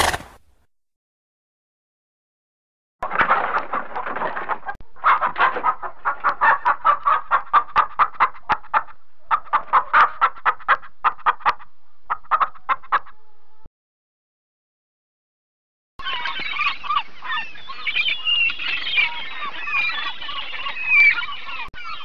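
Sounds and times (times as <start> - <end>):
hens clucking: 0.0 - 0.4, 3.2 - 13.7.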